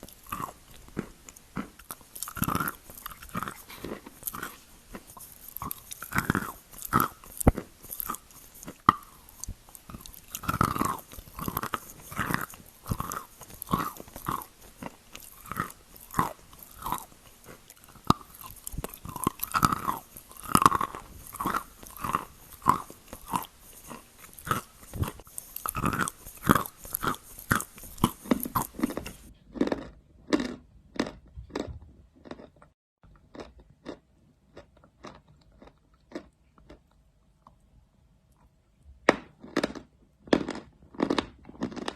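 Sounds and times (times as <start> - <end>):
chalk being crunched and chewed: 0.0 - 32.5.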